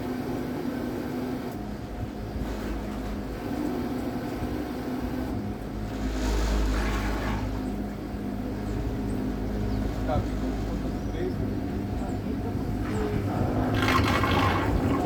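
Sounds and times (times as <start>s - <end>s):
electric boat motor humming: 0.0s - 15.0s
low rumble: 5.3s - 15.0s.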